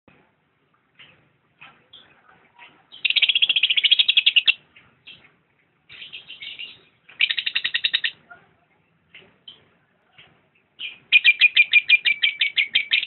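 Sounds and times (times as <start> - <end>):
lovebird chirps: 2.9 - 5.2, 5.9 - 8.2, 10.8 - 13.0
lovebird shrill rapid calls: 3.0 - 4.6, 6.0 - 8.2, 10.8 - 13.0.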